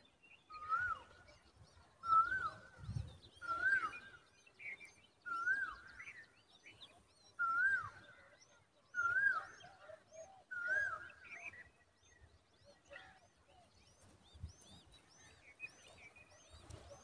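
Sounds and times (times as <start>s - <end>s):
wavering whistled bird notes: 0.0s - 8.3s, 8.9s - 13.2s
soft low bird calls: 0.0s - 17.0s.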